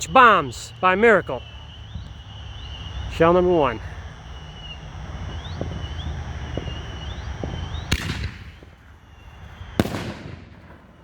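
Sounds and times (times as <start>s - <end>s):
faint chirps: 0.0s - 8.0s
firework shell boom: 7.4s - 8.7s.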